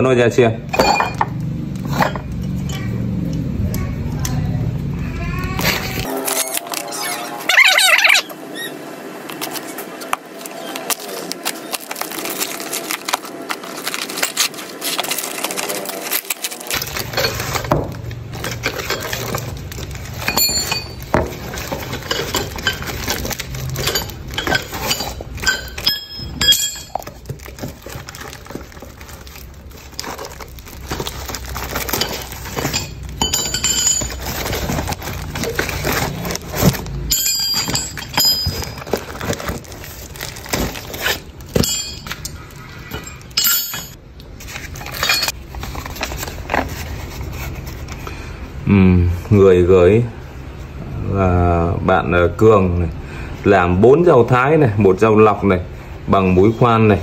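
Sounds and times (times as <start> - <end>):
wrapping rustling: 9.3 - 48.0
steel pieces clinking: 11.4 - 44.0, 44.8 - 45.4.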